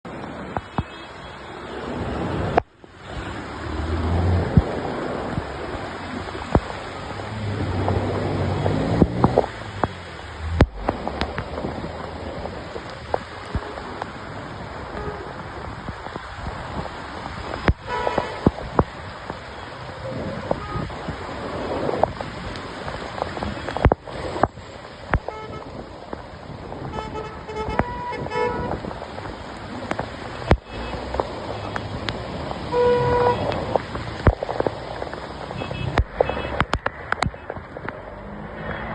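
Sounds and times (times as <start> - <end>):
road traffic passing: 0.0 - 38.9
steady downpour of rain: 0.0 - 38.9
vehicle speeding up: 3.4 - 5.2
car horns honking: 25.2 - 25.7, 26.9 - 28.8, 32.7 - 33.7, 35.5 - 36.7.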